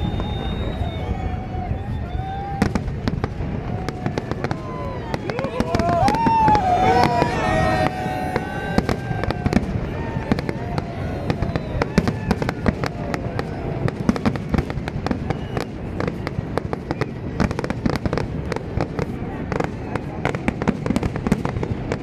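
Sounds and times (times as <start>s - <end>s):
fireworks bangs and crackles: 0.0s - 22.0s
low rumble of fireworks bursts: 0.0s - 22.0s.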